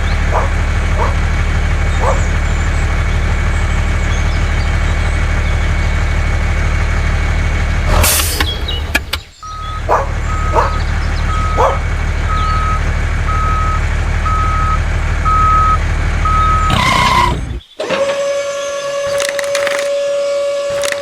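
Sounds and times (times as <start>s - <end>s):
vehicle reversing alarm beeps: 9.4s - 16.7s.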